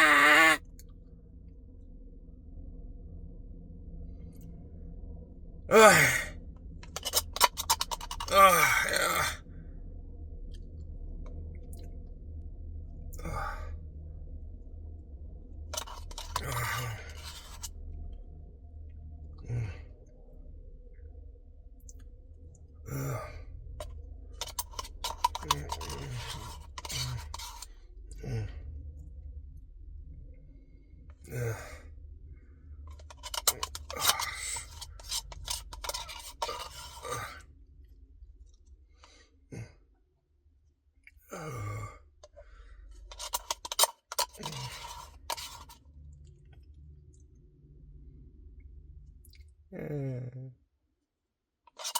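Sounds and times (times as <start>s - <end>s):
man gasping and sighing: 5.7s - 6.3s, 8.2s - 9.4s, 13.2s - 13.7s, 22.9s - 23.5s, 31.3s - 31.8s, 41.3s - 42.6s
mouth clicking and eating noises: 49.2s - 49.5s.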